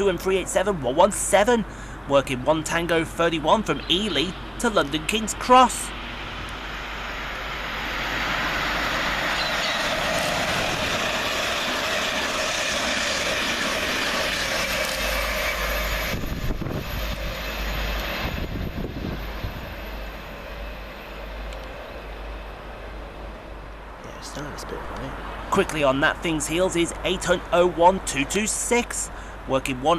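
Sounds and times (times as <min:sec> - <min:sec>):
train passing on rails: 0:00.0 - 0:29.9
wind buffeting microphone: 0:08.5 - 0:20.2.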